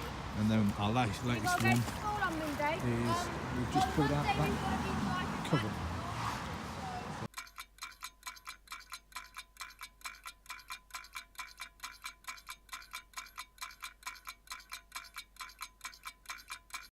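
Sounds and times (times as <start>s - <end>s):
rapid bright chime ticks: 7.3s - 16.9s.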